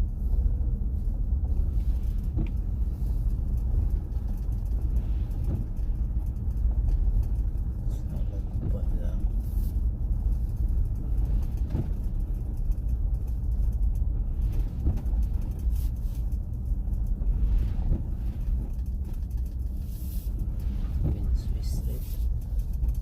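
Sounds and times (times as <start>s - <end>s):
car engine and tyres rumbling: 0.0s - 23.0s.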